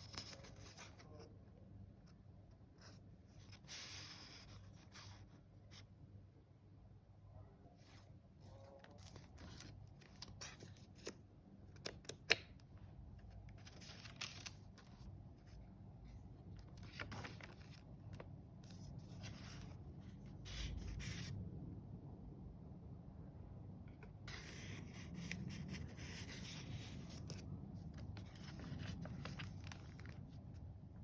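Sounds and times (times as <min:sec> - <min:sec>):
paper pages rustling: 0:00.0 - 0:01.3, 0:08.0 - 0:12.5, 0:13.2 - 0:21.3, 0:24.2 - 0:30.7.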